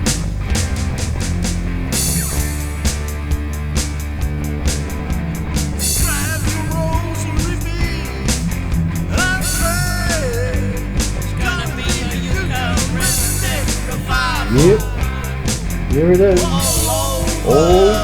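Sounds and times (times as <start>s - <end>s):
drums: 0.0s - 18.0s
electric guitar: 0.0s - 18.0s
person singing: 9.1s - 18.0s.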